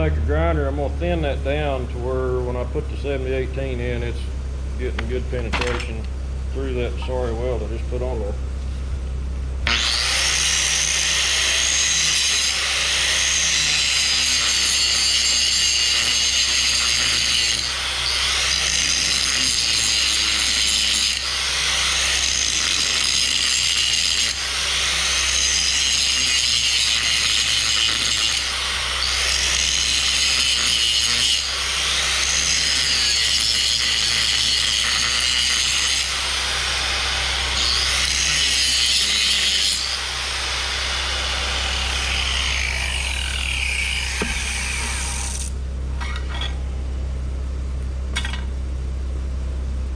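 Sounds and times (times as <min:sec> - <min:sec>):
grinder grinding steel: 0:09.6 - 0:46.6.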